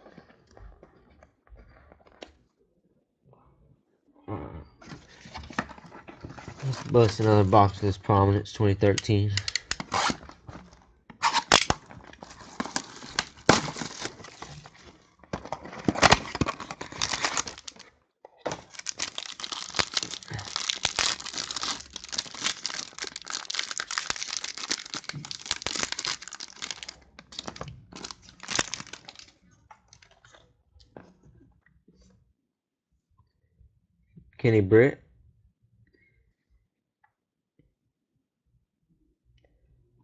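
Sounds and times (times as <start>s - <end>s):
plastic wrapping crinkling and tearing: 6.3s - 7.8s, 9.3s - 17.9s, 18.5s - 30.2s.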